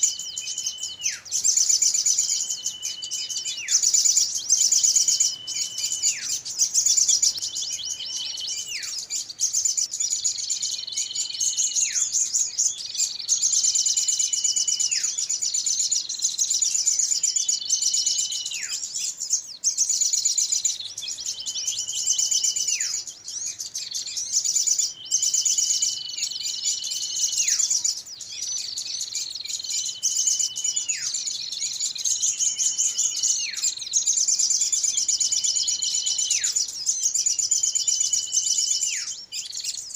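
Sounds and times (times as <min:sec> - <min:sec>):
small birds chirping: 0:00.0 - 0:39.9
falling whistle: 0:02.2 - 0:03.8, 0:04.8 - 0:06.4.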